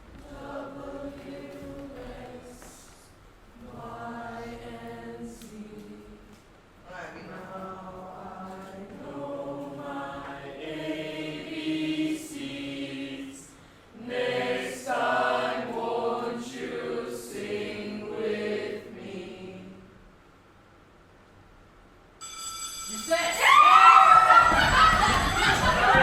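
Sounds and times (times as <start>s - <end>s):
voices chanting together: 0.2s - 6.3s, 7.0s - 20.0s.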